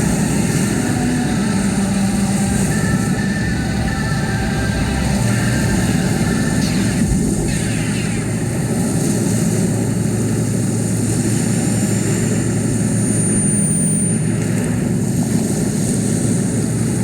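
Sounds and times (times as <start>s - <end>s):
falling synth sweeps: 0.0s - 9.8s
rock band distorted wall of sound: 0.0s - 10.4s.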